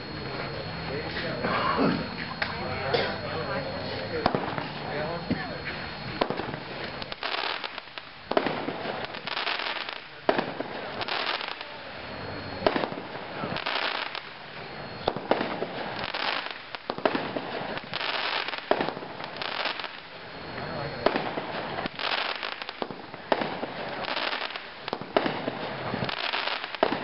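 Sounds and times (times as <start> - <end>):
firework launch reports: 0.0 - 27.0
crackling hiss of firework bursts: 4.2 - 27.0.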